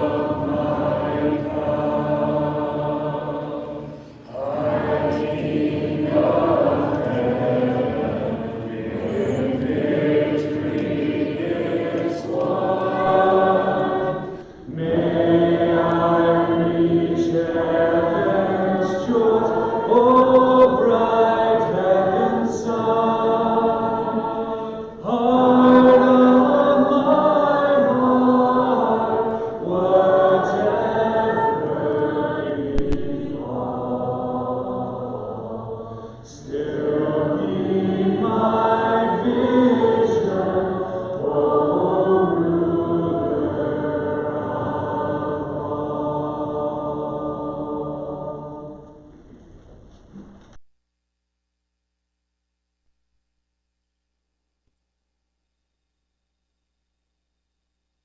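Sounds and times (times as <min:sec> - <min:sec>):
congregation singing a hymn: 0:00.0 - 0:49.3.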